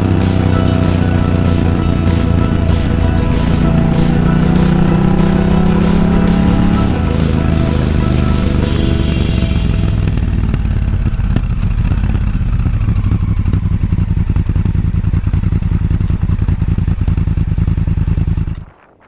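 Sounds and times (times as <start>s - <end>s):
motorcycle engine running: 0.0s - 18.7s.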